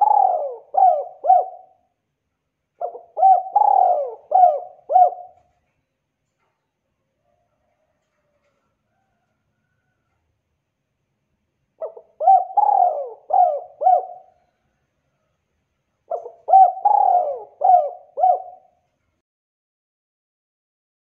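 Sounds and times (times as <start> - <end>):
dove cooing: 0.0 - 1.9, 2.8 - 5.6, 11.8 - 14.6, 16.1 - 18.8.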